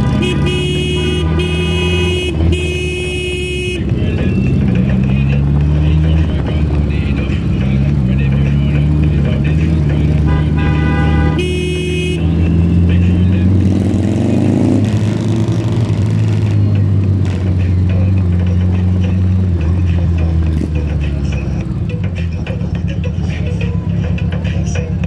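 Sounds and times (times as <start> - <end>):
horn honks: 0.0 - 14.8
engine revving: 0.0 - 25.0
motorcycle engines running: 0.0 - 25.0.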